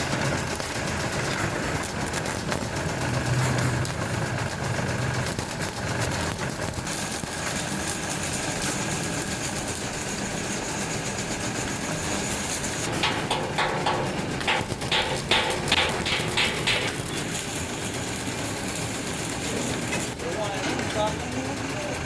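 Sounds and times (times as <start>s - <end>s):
factory machinery humming: 0.0s - 22.0s
sharp metal knocks: 12.8s - 17.4s.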